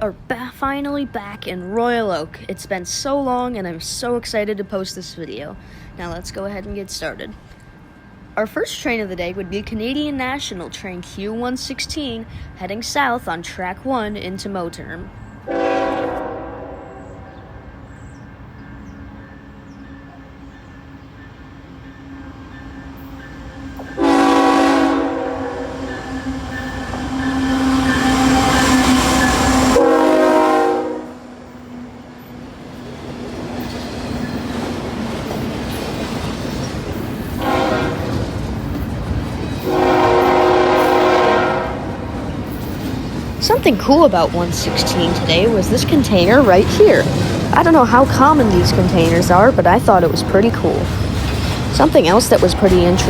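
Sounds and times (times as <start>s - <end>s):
train rumbling: 0.0s - 53.0s
locomotive air horn: 15.5s - 17.3s, 23.7s - 31.6s, 37.4s - 38.1s, 39.6s - 42.0s, 43.6s - 46.0s, 52.0s - 53.0s.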